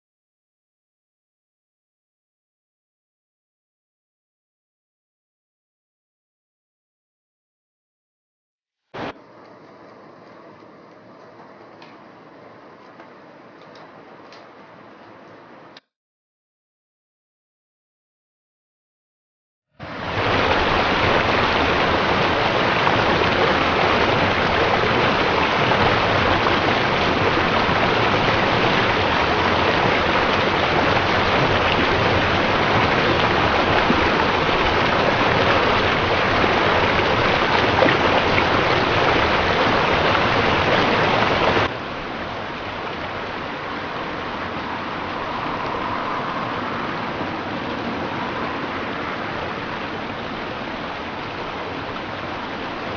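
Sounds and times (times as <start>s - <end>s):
river water rushing: 19.8s - 52.9s.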